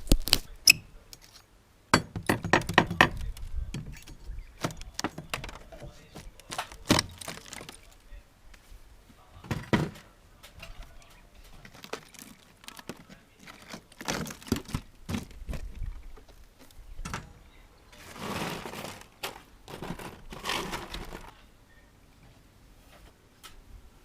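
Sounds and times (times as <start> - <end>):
rustling and crinkling: 0.0 - 0.6, 3.1 - 16.9, 17.9 - 21.5
scraping: 3.0 - 8.0, 10.6 - 16.3, 17.9 - 21.4.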